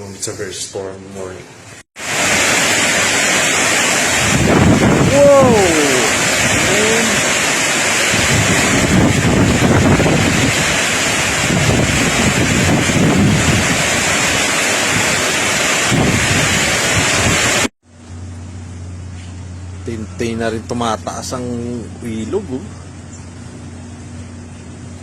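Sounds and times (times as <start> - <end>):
heavy rain: 2.0 - 17.7
strong wind buffeting microphone: 2.2 - 17.7.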